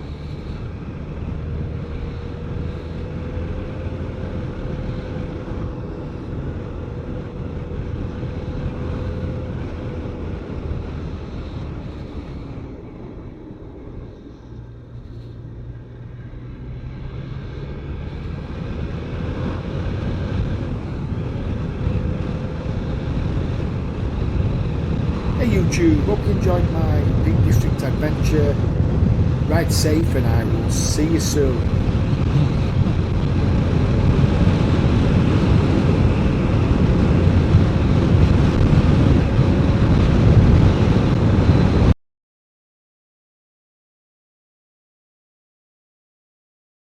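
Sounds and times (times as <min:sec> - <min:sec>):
wind noise on microphone: 0:18.1 - 0:41.9.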